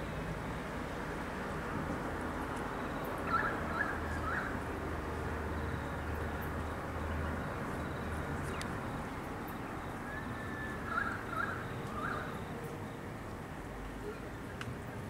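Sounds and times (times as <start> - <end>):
outdoor background hiss: 0.0 - 15.0
bird calling: 3.2 - 4.6, 9.5 - 12.6.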